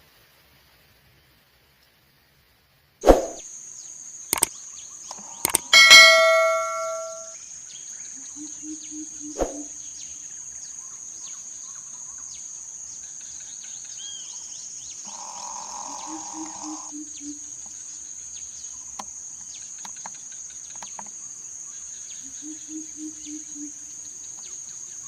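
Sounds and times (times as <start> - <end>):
falling bird chirps: 4.4 - 7.4, 15.0 - 16.9
clicks: 5.1 - 7.3
bell-like ding: 5.5 - 7.4
sharp hit: 5.8 - 7.3
high-pitched insect drone: 15.0 - 17.5.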